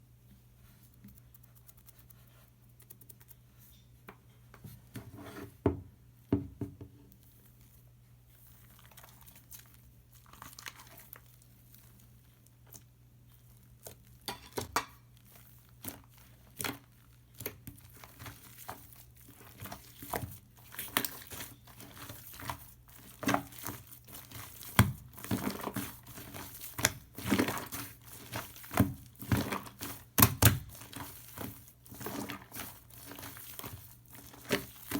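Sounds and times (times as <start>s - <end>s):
slime squished by hand: 15.3s - 34.9s.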